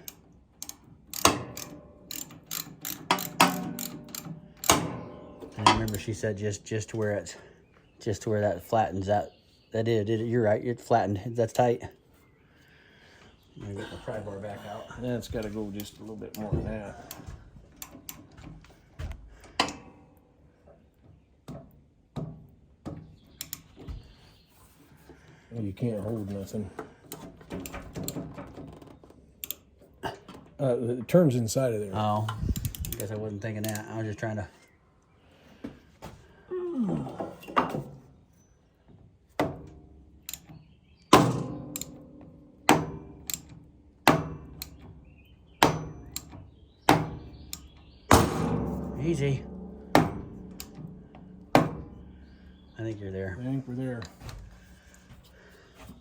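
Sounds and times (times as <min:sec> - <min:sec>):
tools knocking on steel: 0:02.5 - 0:06.0, 0:46.9 - 0:52.0.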